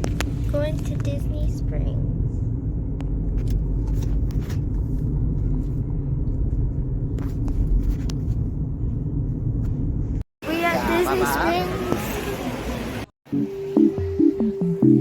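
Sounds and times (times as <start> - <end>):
car engine and tyre rumble: 0.0 - 10.2.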